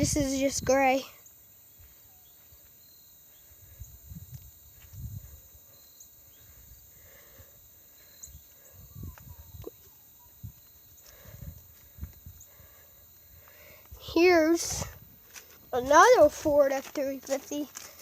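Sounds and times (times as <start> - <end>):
faint high chirps: 1.1 - 15.0
faint footsteps: 4.3 - 5.7, 8.4 - 18.0.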